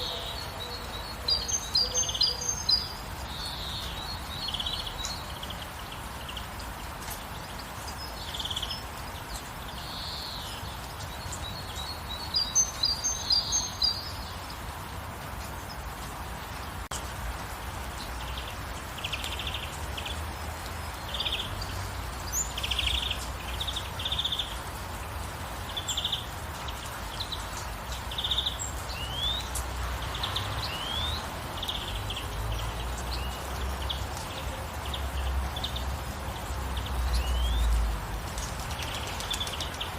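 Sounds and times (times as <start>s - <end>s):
bird chirping: 0.0s - 14.6s, 25.6s - 39.9s
rain hissing: 0.0s - 39.9s.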